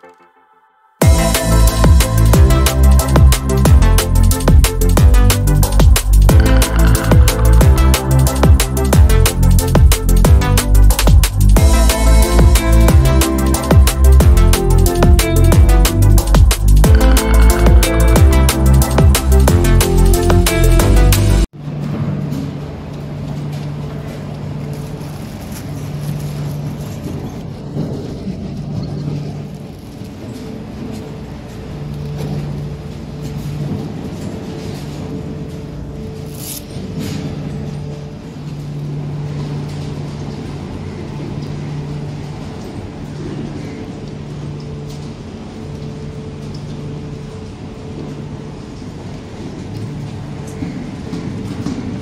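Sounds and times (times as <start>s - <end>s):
engine humming: 1.0s - 52.0s.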